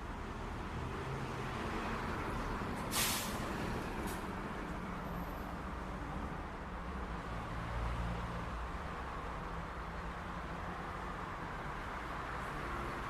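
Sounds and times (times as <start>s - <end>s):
passing traffic: 0.0s - 13.0s
short hiss: 2.9s - 3.4s.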